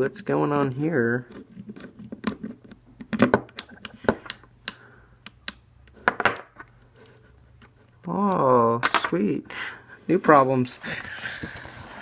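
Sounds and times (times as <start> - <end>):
pistol parts clicking and knocking: 1.8 - 6.7.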